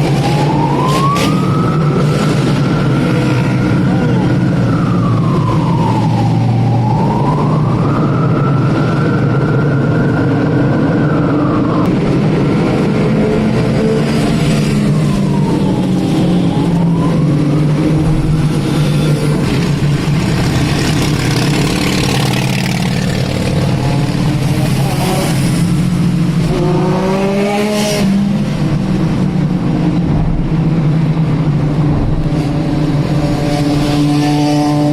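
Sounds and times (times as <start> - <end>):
vehicle engine and road noise: 0.0 - 34.9.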